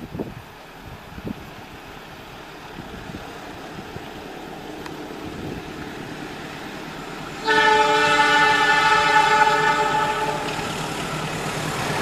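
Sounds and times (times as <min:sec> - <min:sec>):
diesel train rumbling: 0:00.0 - 0:12.0
locomotive horn chord: 0:07.4 - 0:10.8.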